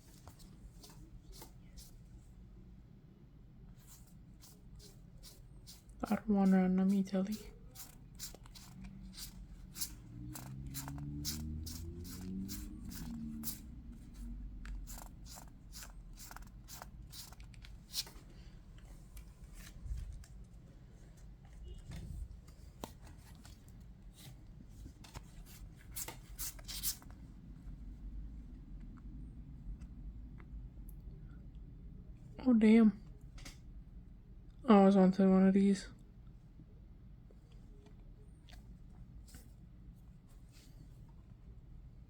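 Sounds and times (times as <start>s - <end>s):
trading cards flipping and clicking: 7.8s - 13.7s.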